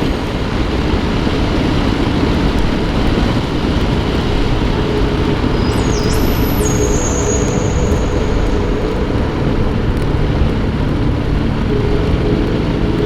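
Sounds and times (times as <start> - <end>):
wind rush over microphone: 0.0 - 13.0
motorcycle engine running: 8.0 - 13.0.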